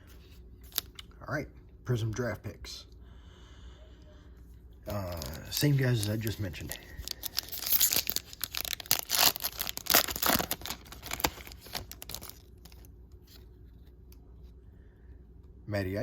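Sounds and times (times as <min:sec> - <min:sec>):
wrapper tearing and crinkling: 0:00.6 - 0:01.0, 0:04.9 - 0:12.9.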